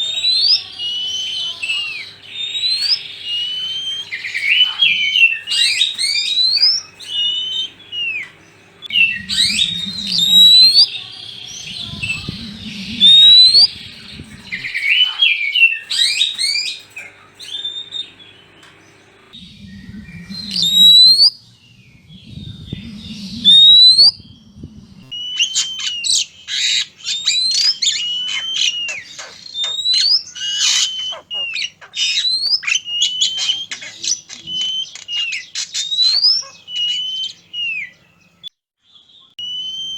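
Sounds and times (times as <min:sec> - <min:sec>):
birds singing: 0:00.0 - 0:39.9
low rumbling noise: 0:06.3 - 0:15.2, 0:17.2 - 0:26.0.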